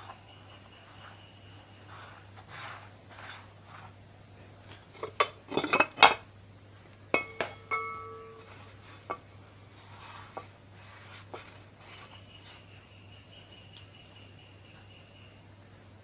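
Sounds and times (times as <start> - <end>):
metal parts soft rubbing: 0.0 - 4.0, 7.2 - 12.8
sharp ringing metallic knocks: 7.2 - 8.5.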